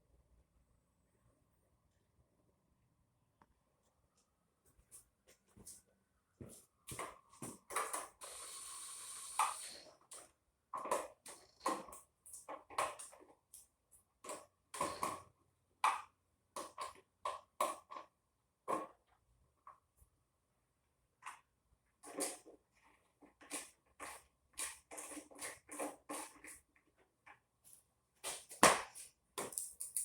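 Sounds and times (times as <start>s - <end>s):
steady hiss: 8.2s - 9.9s.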